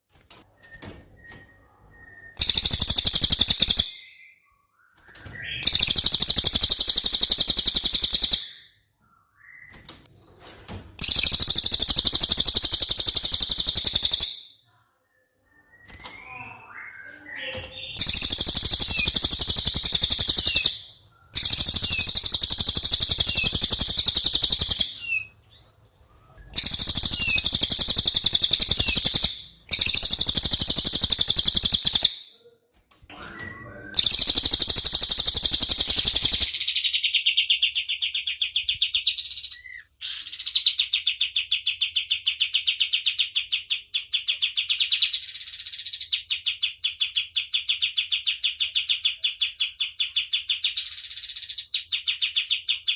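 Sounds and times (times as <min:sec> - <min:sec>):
songbird rapid high chirping: 0:02.1 - 0:04.3, 0:05.5 - 0:08.6, 0:11.0 - 0:14.5, 0:16.0 - 0:25.6, 0:26.5 - 0:32.2, 0:33.9 - 0:40.7
bird fast pulsing trill: 0:02.4 - 0:04.0, 0:05.7 - 0:08.7, 0:11.0 - 0:14.5, 0:18.0 - 0:25.2, 0:26.6 - 0:32.2, 0:34.0 - 0:36.6.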